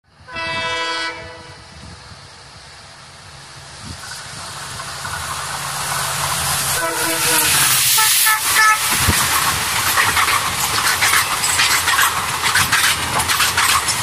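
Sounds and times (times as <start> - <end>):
train horn blasts: 0.2 - 1.8, 6.7 - 9.0
train coaches rushing past: 0.4 - 14.0
wheels clattering over rail joints: 3.8 - 14.0.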